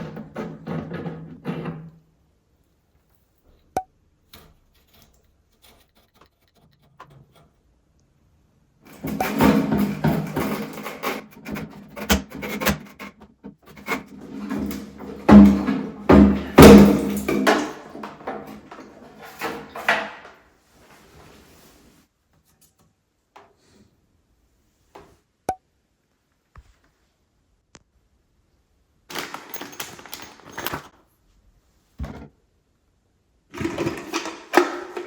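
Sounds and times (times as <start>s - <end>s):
rubbing and scraping of tank parts: 0.0s - 8.0s, 8.9s - 22.8s.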